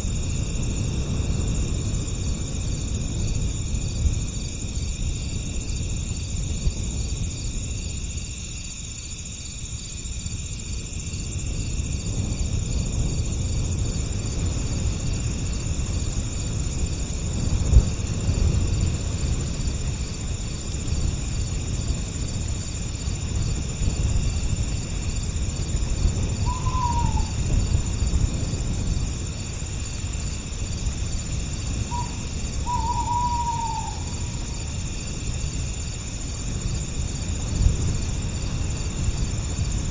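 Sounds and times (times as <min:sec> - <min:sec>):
crickets chirring: 0:00.0 - 0:39.9
low rumble of breeze: 0:00.0 - 0:39.9
bird short falling call: 0:26.5 - 0:27.3.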